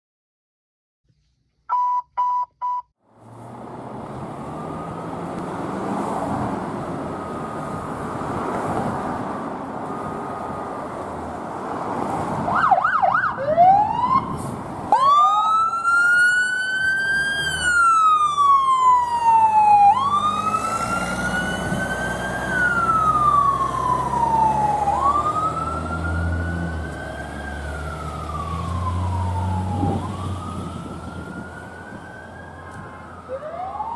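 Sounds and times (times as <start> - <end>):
short beeps: 1.7 - 2.9
traffic noise: 3.0 - 33.9
fire truck siren wailing: 4.0 - 11.3, 12.4 - 33.9
faint distant siren: 4.2 - 9.0, 9.6 - 11.2, 12.4 - 33.9.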